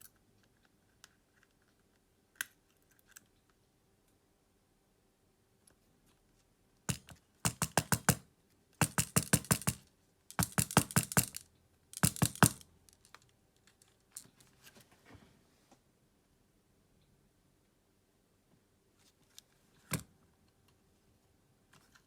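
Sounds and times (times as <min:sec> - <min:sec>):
hand tools and plastic clicking: 0:06.9 - 0:08.2, 0:08.8 - 0:14.4.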